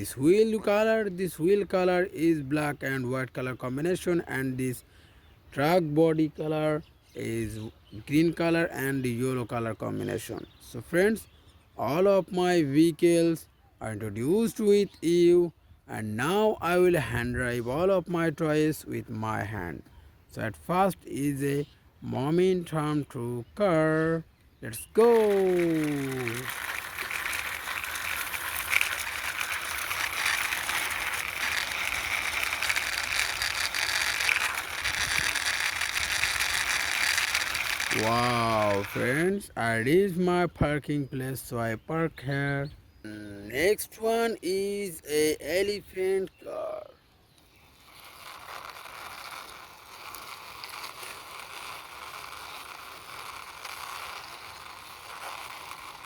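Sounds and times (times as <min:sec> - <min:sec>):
toy car wheels clicking rattle: 0:24.7 - 0:39.5, 0:47.6 - 0:56.0.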